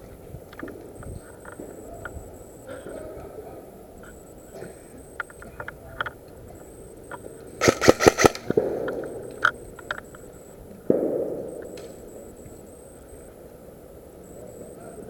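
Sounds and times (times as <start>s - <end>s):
airsoft gun firing: 7.6s - 9.4s, 10.9s - 12.1s.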